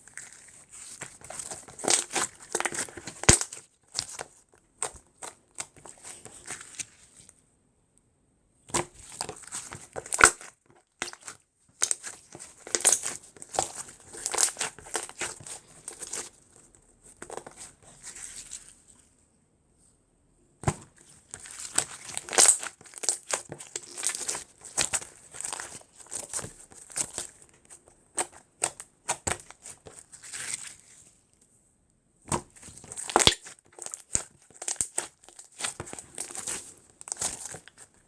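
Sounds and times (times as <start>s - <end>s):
slime crackling and popping: 0.1s - 6.9s, 8.7s - 16.2s, 21.3s - 27.4s, 32.4s - 38.0s.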